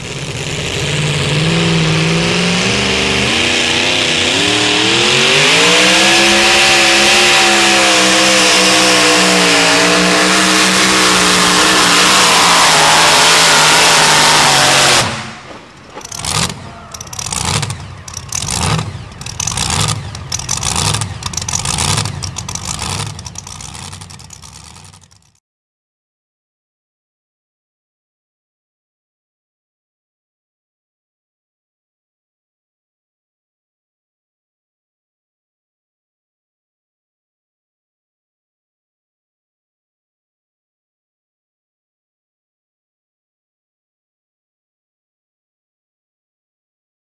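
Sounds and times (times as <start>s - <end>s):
engine throttle blips: 0.0s - 25.4s
truck engine at full throttle: 0.0s - 25.4s.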